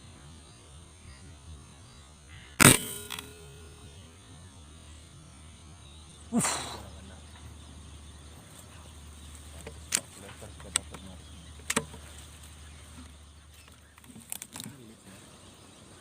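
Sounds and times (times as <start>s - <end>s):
air rifle shot: 2.6s - 4.0s
faint sharp clicks: 9.6s - 12.0s.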